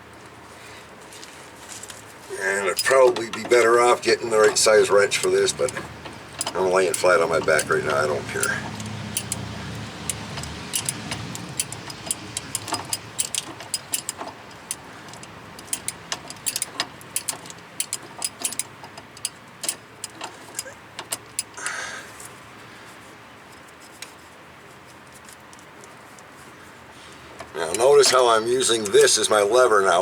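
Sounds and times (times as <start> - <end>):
wrench clicking on metal fitting: 4.4 - 21.6.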